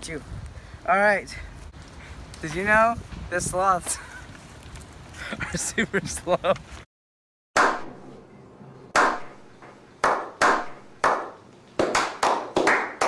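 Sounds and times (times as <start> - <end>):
sharp sudden hits: 7.6 - 11.3.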